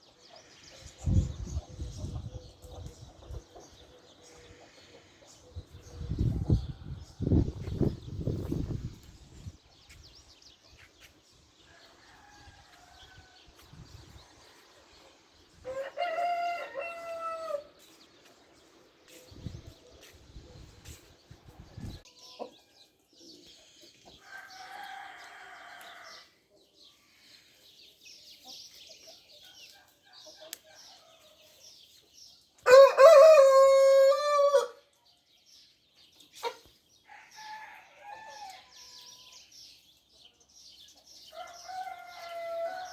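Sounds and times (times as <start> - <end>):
chickens clucking: 0.1 - 6.6, 36.2 - 36.7
rooster crowing: 15.6 - 17.7, 32.7 - 34.8, 41.4 - 42.9.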